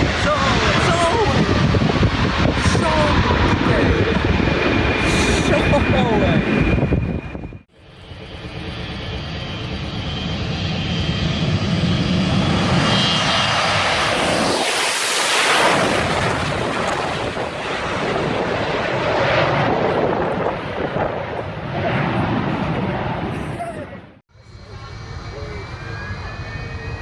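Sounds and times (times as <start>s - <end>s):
airplane engine roar: 0.0s - 27.0s.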